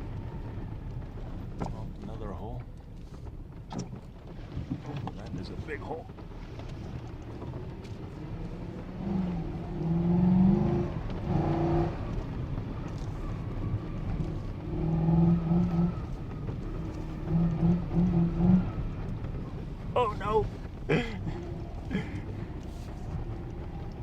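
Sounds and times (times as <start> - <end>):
vehicle engine revving: 6.5 - 24.0.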